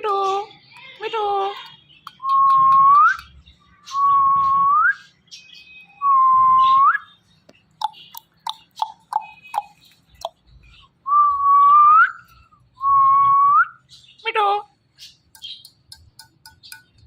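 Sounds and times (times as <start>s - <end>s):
parrot chirps and clicks: 0.0s - 3.6s, 7.4s - 10.4s, 15.1s - 17.0s.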